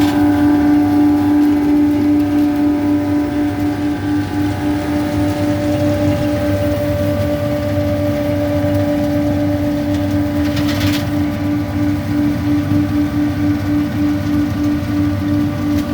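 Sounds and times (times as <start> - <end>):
harvester machine whine and rumble: 0.0 - 15.9.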